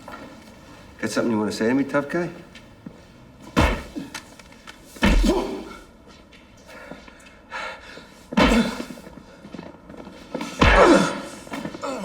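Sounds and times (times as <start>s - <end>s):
heavy punch thuds: 3.5s - 4.2s, 5.0s - 5.8s, 8.4s - 9.0s, 10.4s - 11.8s.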